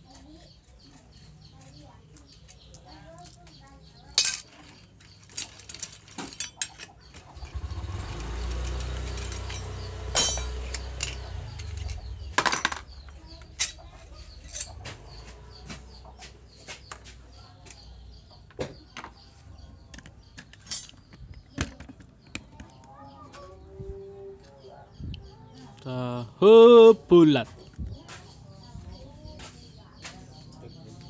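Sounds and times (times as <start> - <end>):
tools and metal parts clinking: 4.1 - 14.9, 20.4 - 22.2.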